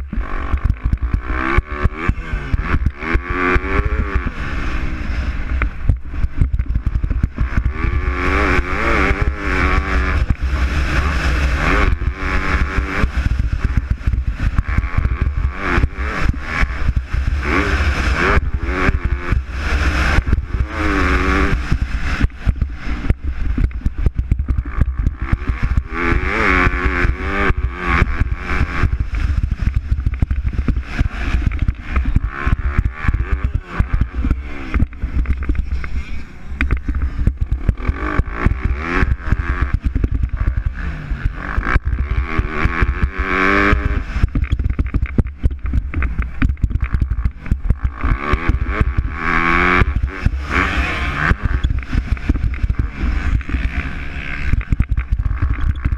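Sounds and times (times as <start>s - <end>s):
motocross bike engines revving: 0.0s - 55.9s.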